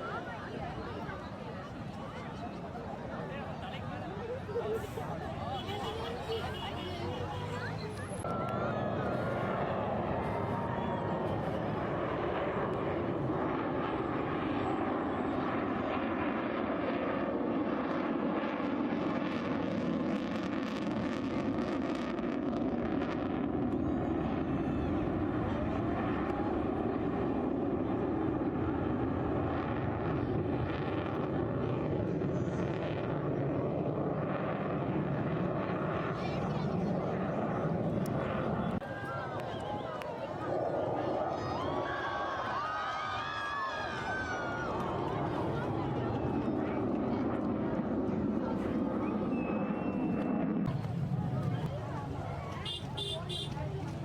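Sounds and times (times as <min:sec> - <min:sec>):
jet aircraft flying over: 0:00.0 - 0:54.0.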